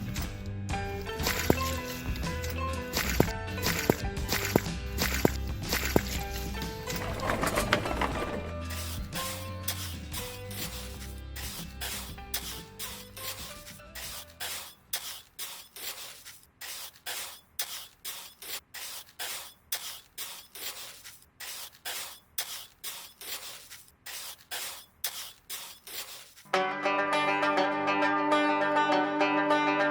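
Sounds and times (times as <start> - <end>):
background music: 0.0 - 14.5
rhythmic rasping strokes: 1.1 - 26.5.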